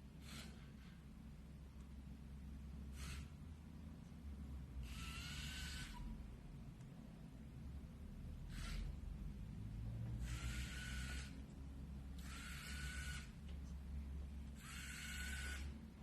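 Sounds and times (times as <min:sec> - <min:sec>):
small gear motors whirring: 0:04.8 - 0:06.1, 0:08.5 - 0:09.0, 0:10.2 - 0:11.4, 0:12.2 - 0:13.4, 0:14.6 - 0:15.8.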